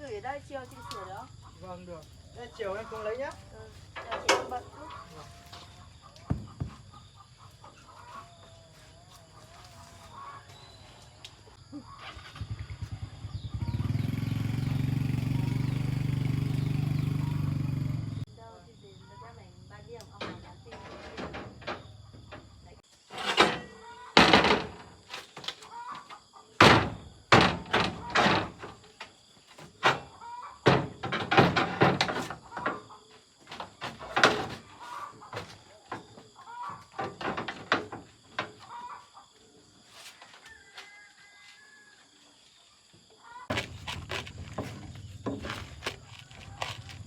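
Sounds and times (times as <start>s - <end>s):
loud knocks and thuds: 6.3s - 7.0s, 23.4s - 25.1s, 26.6s - 28.8s, 29.6s - 32.9s, 37.0s - 38.6s, 43.5s - 46.1s.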